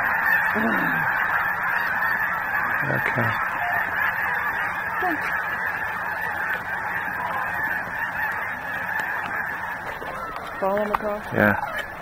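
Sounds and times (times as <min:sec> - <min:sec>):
flock of geese honking: 0:00.0 - 0:12.0.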